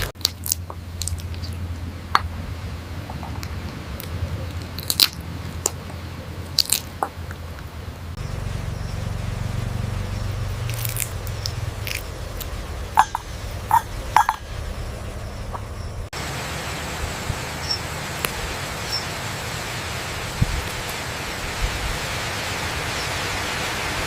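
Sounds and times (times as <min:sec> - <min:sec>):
parrot biting and chewing: 0:00.0 - 0:02.3, 0:03.0 - 0:07.7, 0:10.5 - 0:14.6
steady low hum: 0:00.0 - 0:24.0.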